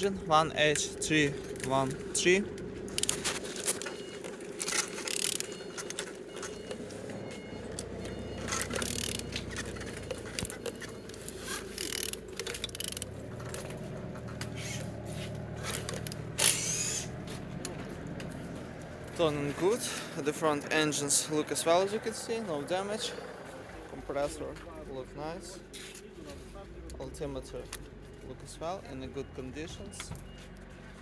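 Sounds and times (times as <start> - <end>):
engine turned over by hand: 0.0 - 25.1
tool scraping and clicking: 2.8 - 6.8, 8.4 - 17.8.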